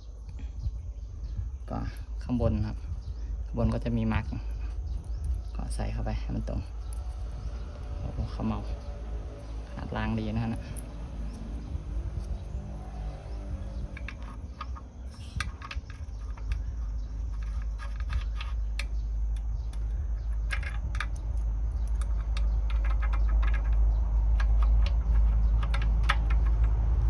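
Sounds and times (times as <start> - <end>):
low rumble: 0.0 - 27.0
metallic clicks and clinks: 6.4 - 27.0.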